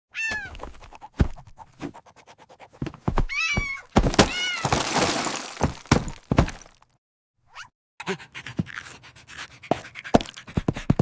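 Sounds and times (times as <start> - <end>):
cartoon cat meowing: 0.2 - 0.6.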